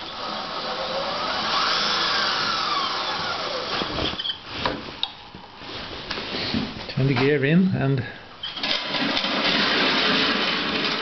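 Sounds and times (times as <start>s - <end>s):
electric motor whining: 0.0s - 4.2s.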